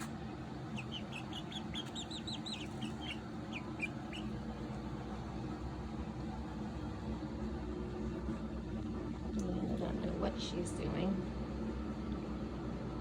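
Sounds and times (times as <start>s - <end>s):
chicks peeping: 0.0s - 4.6s.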